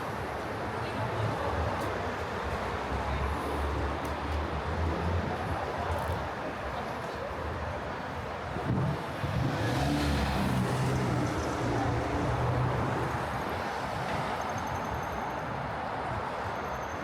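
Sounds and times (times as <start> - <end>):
city traffic hum: 0.0 - 17.0
vehicle engine passing: 9.2 - 13.0.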